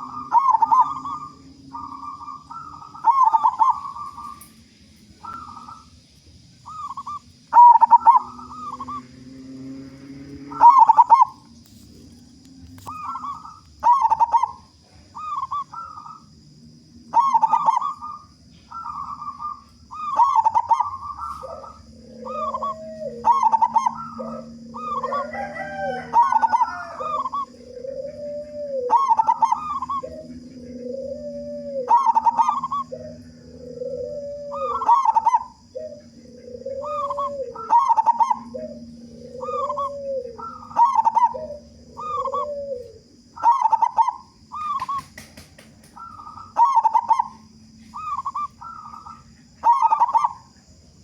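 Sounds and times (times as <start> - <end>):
lower-pitched dove cooing: 0.0 - 6.0, 6.6 - 50.7
doves cooing: 0.0 - 51.0.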